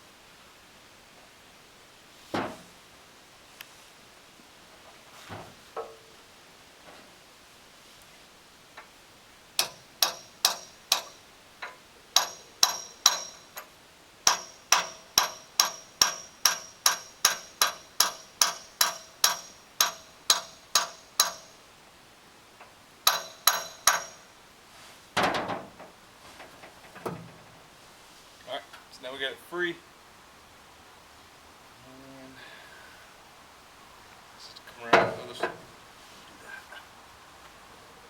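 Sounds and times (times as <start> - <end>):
hammer striking metal pin: 9.6 - 13.7, 14.3 - 21.6, 23.1 - 24.3
rattling metal clatter: 9.6 - 13.7, 14.3 - 21.6, 23.1 - 24.3, 25.2 - 27.6.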